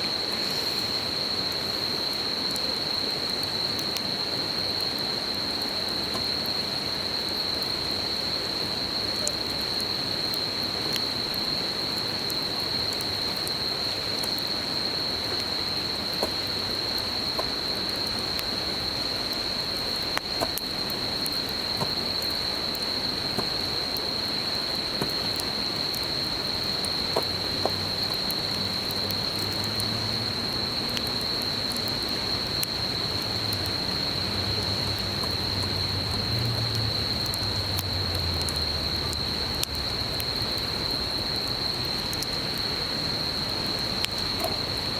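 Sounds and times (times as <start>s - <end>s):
campfire crackling and popping: 0.0s - 44.9s
insect trilling: 13.1s - 30.4s, 39.1s - 44.9s.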